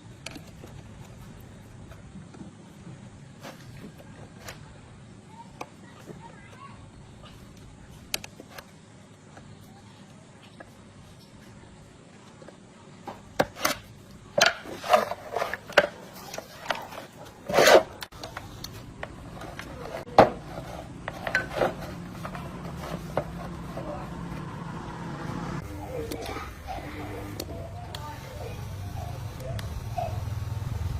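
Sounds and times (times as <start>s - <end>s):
steady low hum: 0.0s - 30.9s
tools knocking and clinking: 21.0s - 23.4s.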